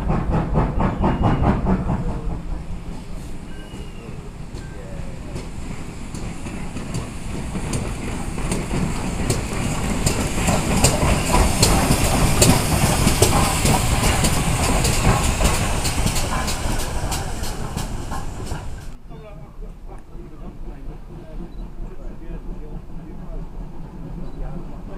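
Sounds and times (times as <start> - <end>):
train wheels clicking over rail joints: 0.0 - 19.0.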